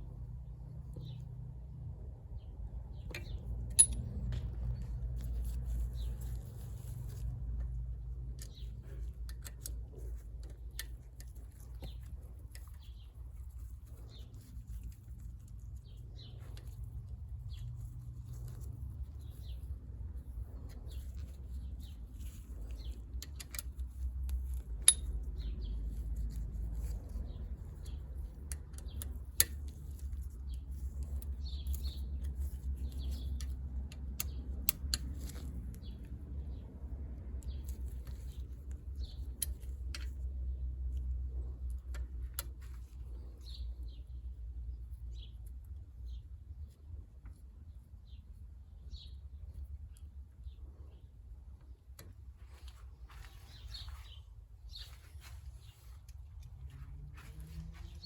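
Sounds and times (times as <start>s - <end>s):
low steady hum: 0.0s - 58.0s
small metal parts clicking: 3.1s - 19.6s, 20.4s - 36.1s.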